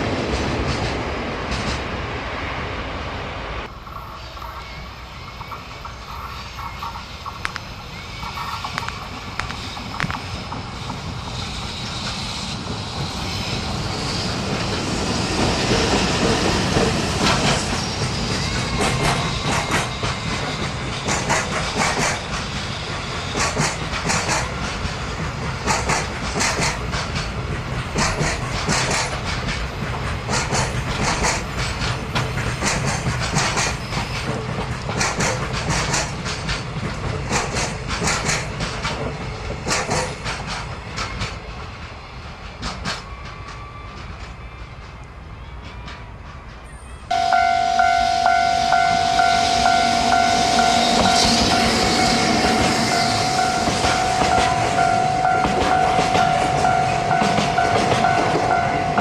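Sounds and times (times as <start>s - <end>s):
freight train passing: 0.0s - 59.0s
wheels clicking over rail joints: 15.4s - 46.7s.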